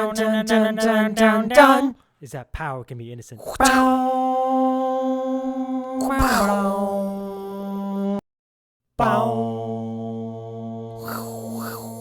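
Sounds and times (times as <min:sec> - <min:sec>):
person singing a sliding note: 0:03.6 - 0:08.2, 0:09.0 - 0:12.0.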